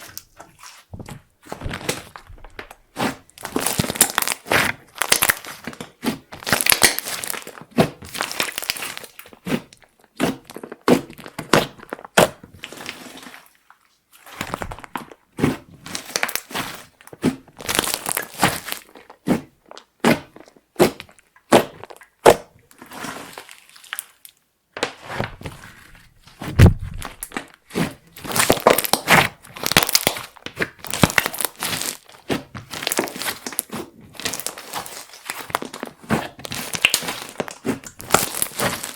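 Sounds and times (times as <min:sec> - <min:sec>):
slime crackling and popping: 0:01.6 - 0:13.0, 0:15.8 - 0:24.4, 0:25.3 - 0:38.9
dull thump: 0:26.4 - 0:27.2.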